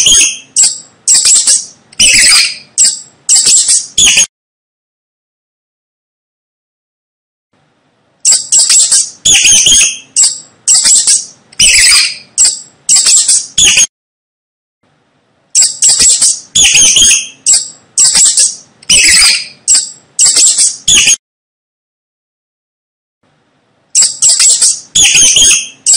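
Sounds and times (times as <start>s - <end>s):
mouse squeaking: 0.0s - 4.3s, 8.2s - 13.9s, 15.5s - 21.2s, 24.0s - 25.9s.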